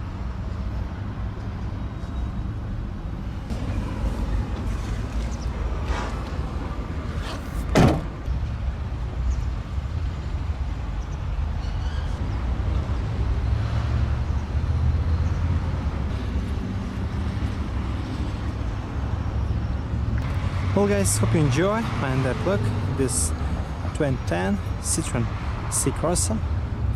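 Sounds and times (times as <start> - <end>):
car door shutting: 7.2 - 8.3.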